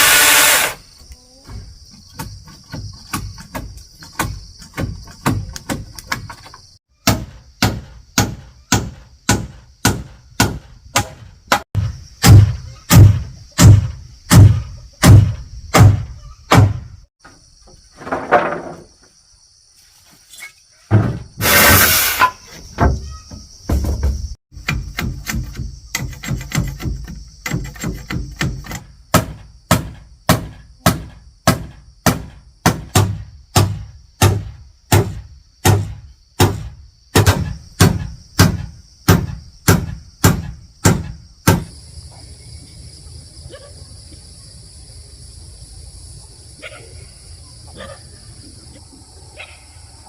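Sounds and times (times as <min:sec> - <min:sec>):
high insect drone: 0:00.0 - 0:06.8, 0:18.8 - 0:50.0
heavy thudding blows: 0:28.4 - 0:41.8.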